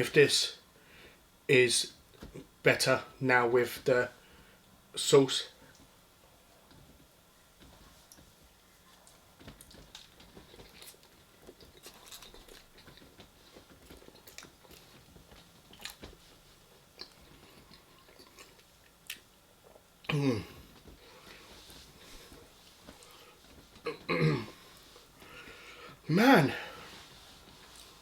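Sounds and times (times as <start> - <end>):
chewing and crunching food: 7.6 - 25.8.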